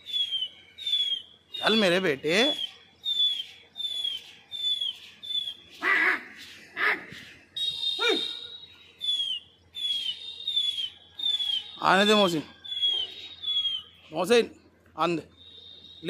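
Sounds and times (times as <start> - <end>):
wordless human calls: 0.0 - 14.1
small bird chirping: 0.0 - 16.0.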